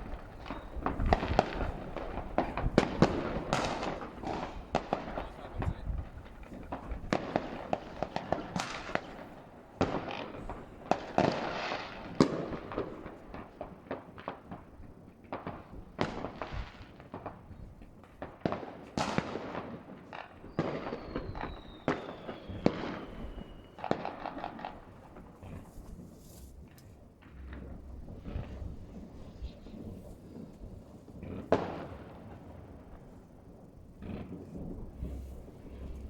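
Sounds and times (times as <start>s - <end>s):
fireworks bangs: 0.0s - 36.0s
fireworks crackling: 0.0s - 36.0s
falling whistle: 20.9s - 23.8s.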